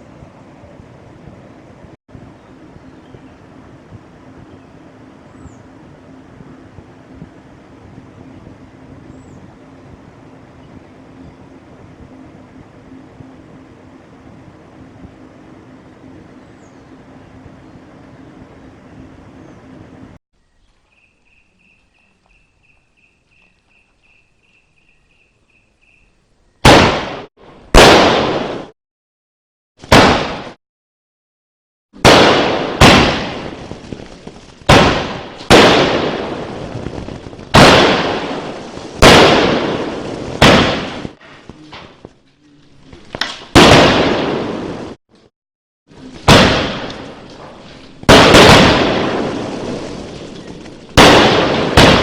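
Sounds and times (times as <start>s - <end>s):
firework bangs with crackle: 26.6s - 28.7s, 29.8s - 30.6s, 32.0s - 42.1s, 43.1s - 45.0s, 46.2s - 52.0s.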